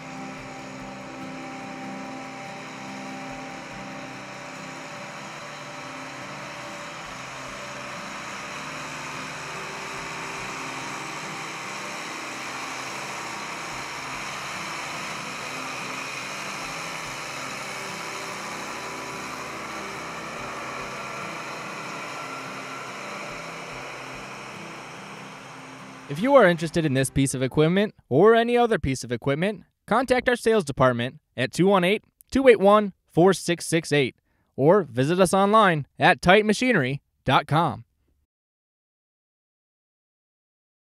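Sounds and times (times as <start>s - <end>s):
tractor diesel engine idling: 0.0s - 27.0s.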